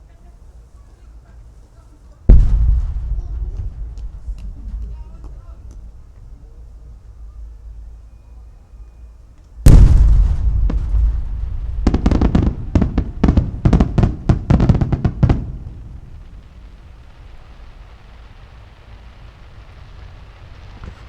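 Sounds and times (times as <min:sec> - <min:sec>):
firework rumble: 0:00.0 - 0:21.0
firework shell heavy boom: 0:02.3 - 0:08.1, 0:09.6 - 0:17.4
sharp firework bangs: 0:02.3 - 0:08.7, 0:09.6 - 0:21.0.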